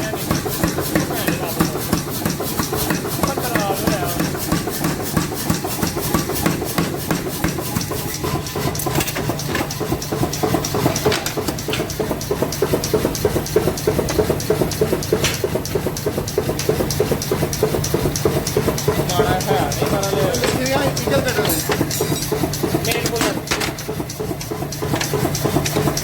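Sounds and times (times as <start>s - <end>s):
rapid regular clicking: 0.0s - 26.0s
workshop machinery humming: 0.0s - 26.0s.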